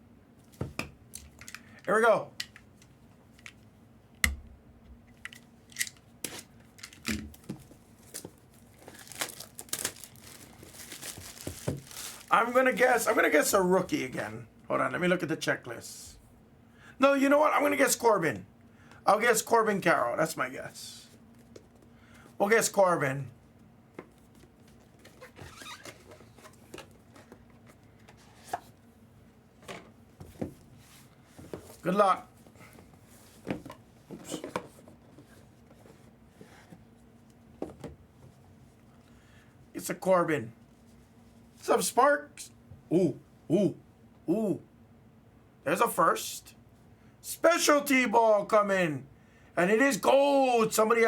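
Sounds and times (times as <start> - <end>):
wrap crinkling: 7.6 - 13.1
packaging tearing: 8.6 - 12.3
packaging knocks: 8.9 - 12.3.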